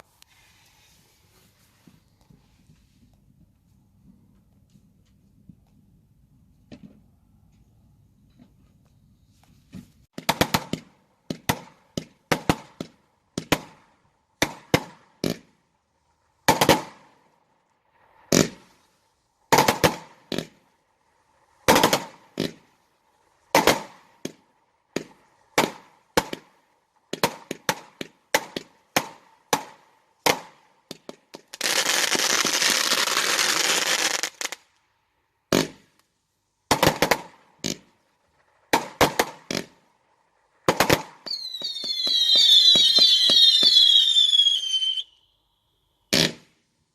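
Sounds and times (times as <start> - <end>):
fireworks bangs: 10.1 - 15.6, 16.4 - 17.2, 19.5 - 20.6, 21.6 - 22.7, 23.5 - 34.6, 36.7 - 37.9, 38.7 - 39.8, 40.6 - 45.1, 46.1 - 46.5
fireworks crackling hiss: 27.8 - 34.7, 40.7 - 45.2.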